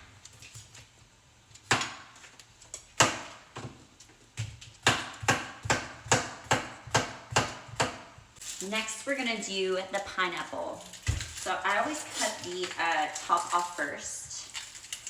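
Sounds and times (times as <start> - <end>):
knife chopping on cutting board: 1.6 - 2.1, 3.0 - 3.8, 4.4 - 8.2.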